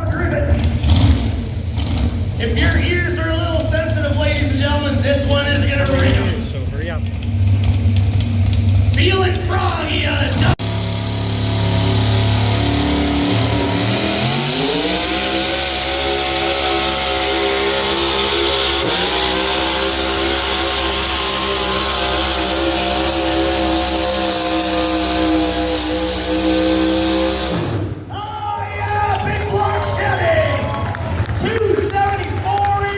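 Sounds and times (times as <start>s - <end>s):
tractor engine under load: 0.0s - 28.0s
high rising whine: 10.4s - 28.1s.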